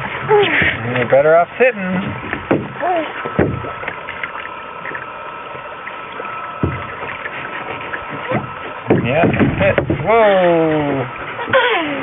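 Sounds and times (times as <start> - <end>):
water lapping against canoe hull: 0.0 - 12.0
knocks on canoe: 2.0 - 4.0, 6.6 - 10.3.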